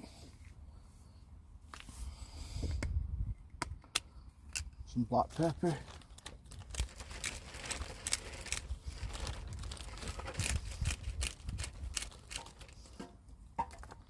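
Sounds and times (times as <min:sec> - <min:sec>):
plastic bag crinkling: 0:05.3 - 0:12.9.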